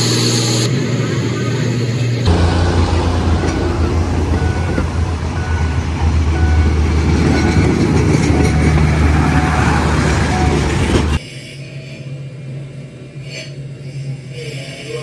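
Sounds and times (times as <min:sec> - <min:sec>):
diesel train engine running: 0:00.0 - 0:15.0.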